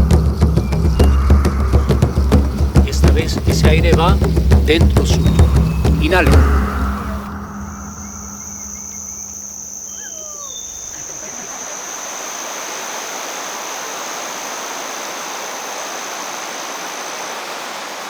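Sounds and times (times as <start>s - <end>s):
rushing water: 0.0s - 9.5s, 10.9s - 18.0s
bird chirps: 0.0s - 12.2s
high-pitched insect drone: 0.0s - 16.0s.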